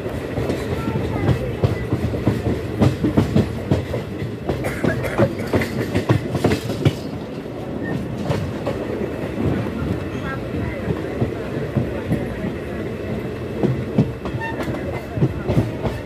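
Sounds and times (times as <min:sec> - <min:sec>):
train running gear rumble: 0:00.0 - 0:16.0
wheels clacking over rail joints: 0:00.0 - 0:16.0.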